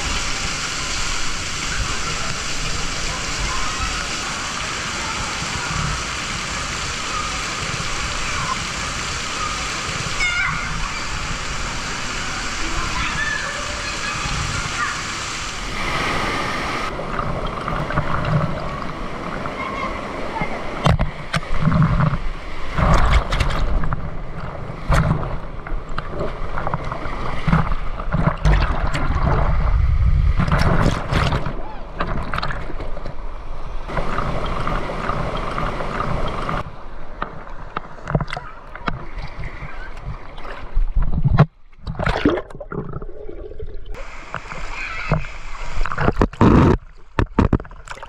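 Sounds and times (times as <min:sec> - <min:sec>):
water rushing: 0:00.0 - 0:48.0
wind buffeting microphone: 0:28.4 - 0:31.7.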